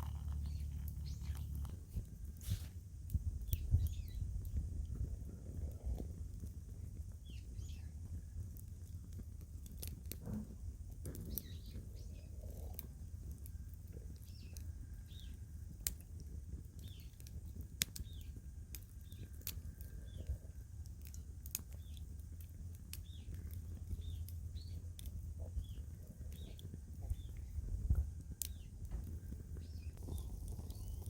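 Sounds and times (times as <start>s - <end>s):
bird chirping: 0.0s - 1.7s, 3.5s - 4.3s
low steady rumble: 0.0s - 31.0s
twig fire crackling and popping: 0.0s - 31.0s.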